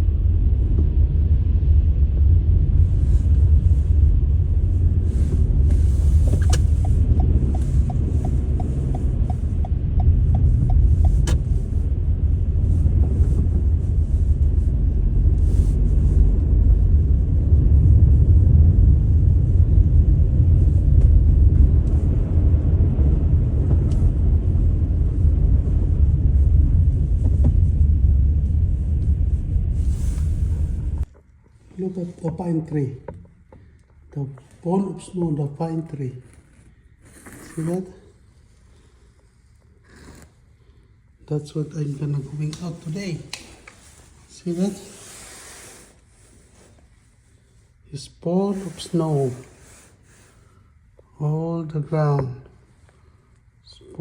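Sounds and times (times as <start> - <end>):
loud low rumble: 0.0 - 31.1.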